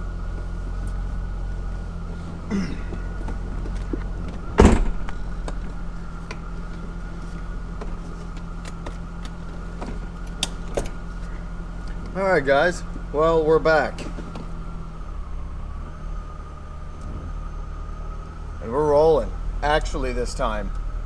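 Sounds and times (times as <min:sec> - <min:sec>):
car engine idling: 0:00.0 - 0:21.0
car door shutting: 0:02.0 - 0:11.1.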